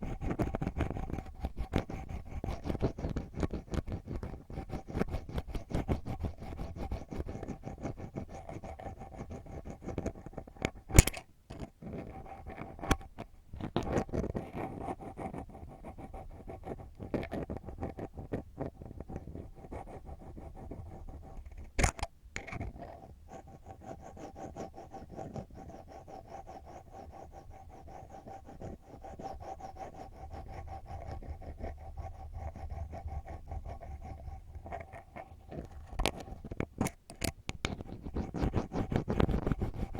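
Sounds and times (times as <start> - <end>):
ear pick scratching: 9.3 - 14.8, 34.7 - 39.9.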